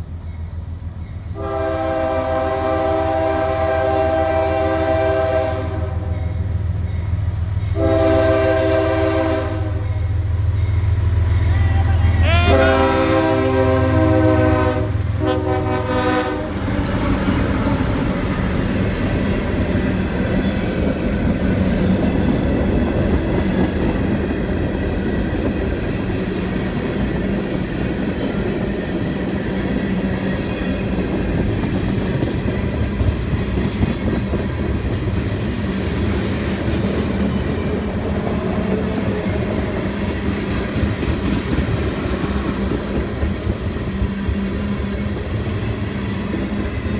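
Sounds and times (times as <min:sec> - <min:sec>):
train horn: 0:01.4 - 0:06.3, 0:07.7 - 0:10.2, 0:11.5 - 0:17.8
locomotive engine hum: 0:06.4 - 0:24.8
train wheels clattering: 0:17.1 - 0:46.9.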